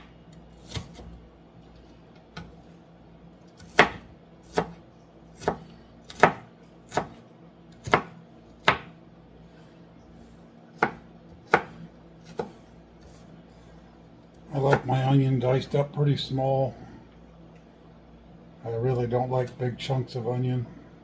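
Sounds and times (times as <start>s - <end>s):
knife chopping onion: 0.0s - 1.2s, 3.5s - 9.0s, 10.8s - 13.3s, 14.5s - 15.1s.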